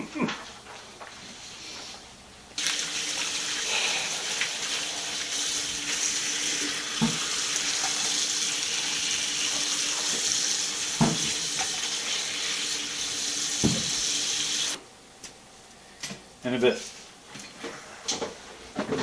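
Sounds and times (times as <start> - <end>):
tap running water into sink: 2.6 - 14.8.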